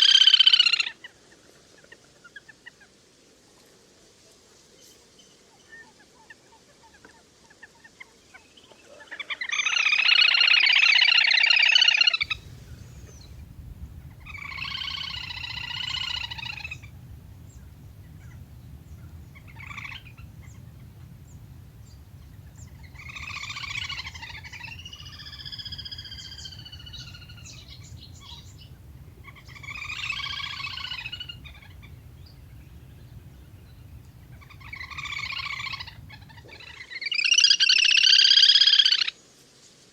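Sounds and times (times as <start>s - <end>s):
steady low hum: 12.2s - 36.7s
grebe trilling calls: 12.2s - 36.8s.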